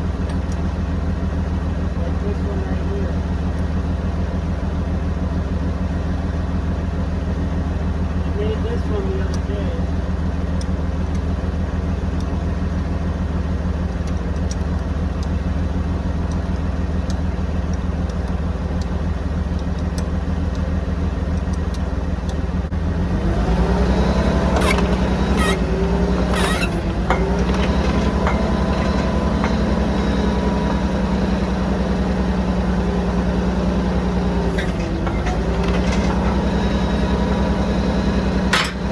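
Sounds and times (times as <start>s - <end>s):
drill rig engine running: 0.0s - 38.9s
metallic squeals: 23.9s - 31.8s, 34.3s - 38.9s
metallic clanks: 24.0s - 38.9s.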